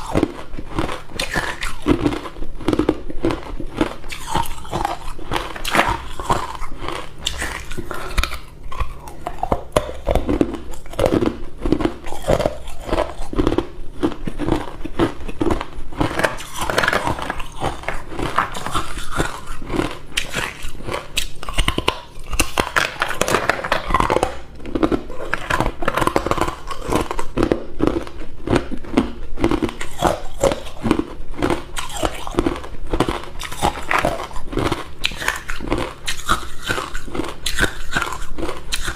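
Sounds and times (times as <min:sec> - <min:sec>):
person chewing ice cubes: 0:00.0 - 0:38.9.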